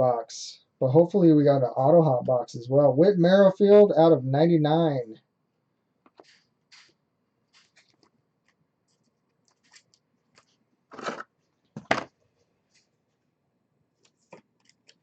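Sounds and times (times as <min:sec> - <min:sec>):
trading cards and wrappers rustling: 0:06.1 - 0:11.8.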